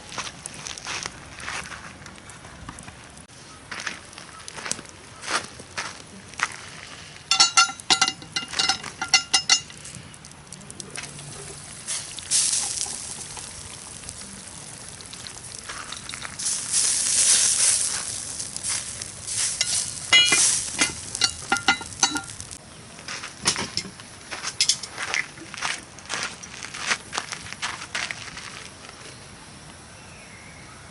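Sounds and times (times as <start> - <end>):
food sizzling in a pan: 10.9 - 22.6
metal utensil scraping a pan: 19.3 - 22.5.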